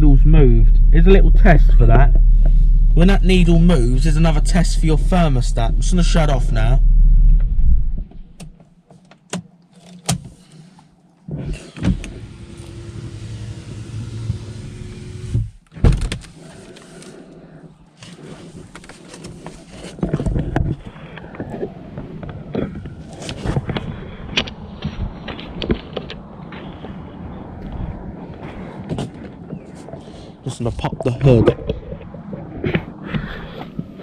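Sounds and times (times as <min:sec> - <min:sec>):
car engine idling: 0:00.0 - 0:07.7
steady whir: 0:00.0 - 0:08.1, 0:11.4 - 0:15.6.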